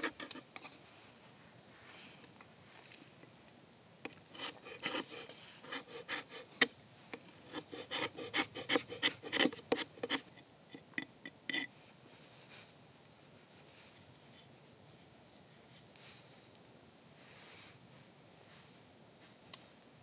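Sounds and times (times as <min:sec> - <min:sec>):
short scraping strokes: 0:07.5 - 0:10.2.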